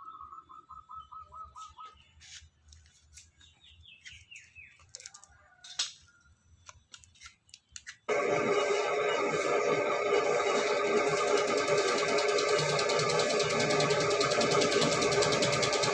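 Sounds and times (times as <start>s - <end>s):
faint bird chirps: 0.0s - 2.6s.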